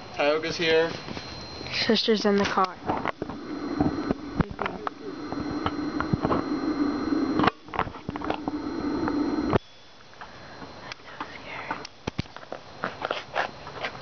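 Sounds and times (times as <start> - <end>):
bee swarm buzzing: 1.5 - 9.6.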